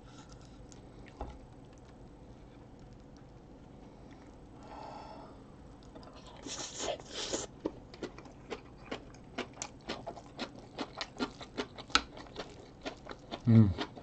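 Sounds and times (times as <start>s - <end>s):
breathy sounds: 4.1s - 5.5s
wet chewing: 5.7s - 14.0s.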